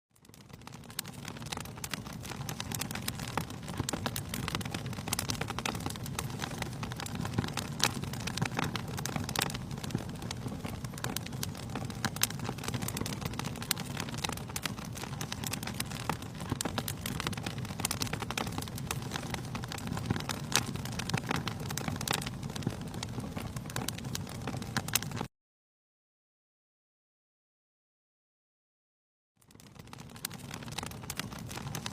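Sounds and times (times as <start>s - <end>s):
wood fire crackling and popping: 0.1s - 25.3s, 29.4s - 31.9s
low rumble of flames: 0.2s - 25.3s, 29.4s - 31.9s.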